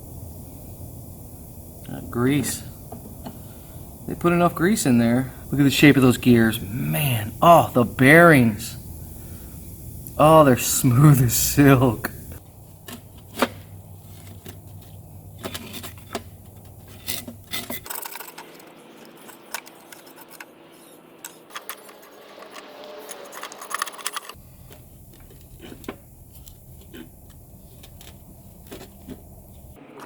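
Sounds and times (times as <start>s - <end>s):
metal parts clinking and tapping: 14.2s - 29.2s.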